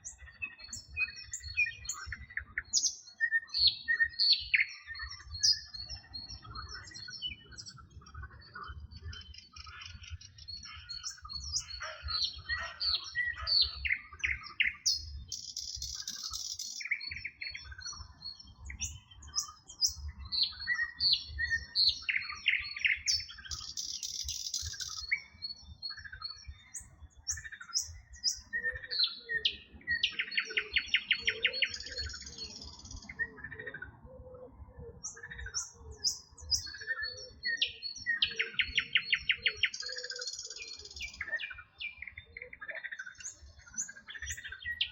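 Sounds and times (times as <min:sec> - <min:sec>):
songbirds singing: 0:00.0 - 0:44.9
frogs croaking: 0:08.3 - 0:17.8.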